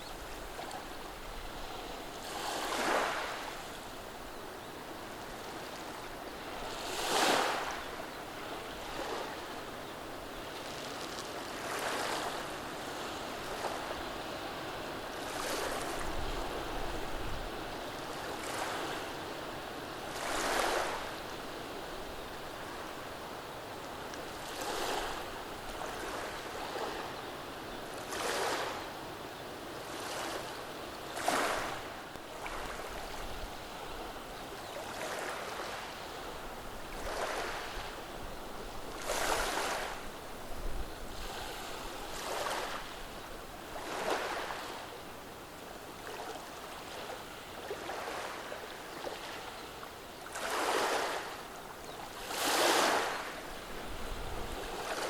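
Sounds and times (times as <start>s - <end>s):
waves washing over pebbles: 52.2s - 55.0s.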